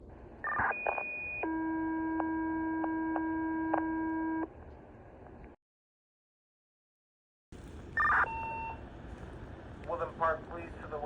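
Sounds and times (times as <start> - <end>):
radio hiss: 9.8 - 11.0.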